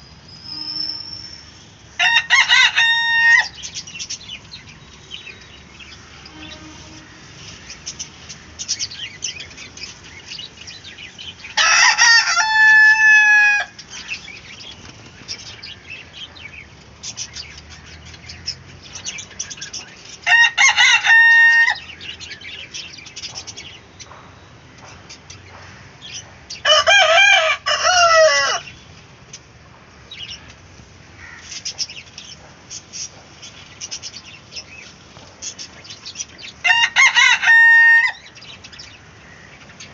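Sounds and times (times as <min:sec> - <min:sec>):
rooster crowing: 0:02.0 - 0:03.6, 0:11.6 - 0:13.8, 0:20.2 - 0:21.9, 0:26.6 - 0:28.7, 0:36.6 - 0:38.3.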